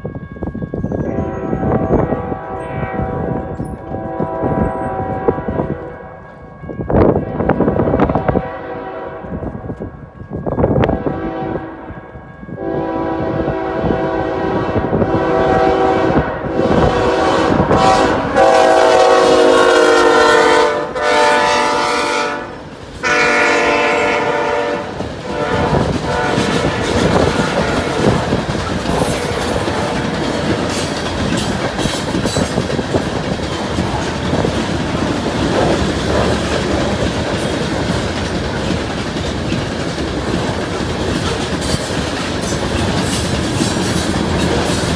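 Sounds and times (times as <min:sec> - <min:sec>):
rail cars rumbling past: 0:00.0 - 0:44.9
locomotive horn blasts: 0:01.0 - 0:06.3, 0:07.1 - 0:09.6, 0:10.8 - 0:31.0
wheels clacking over rail joints: 0:17.8 - 0:44.9.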